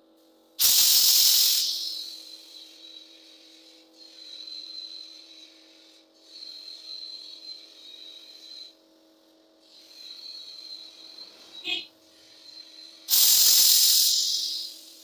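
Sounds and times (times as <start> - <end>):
faint steady hum: 0.0 - 15.0
gas hissing with thin whistle: 0.6 - 15.0.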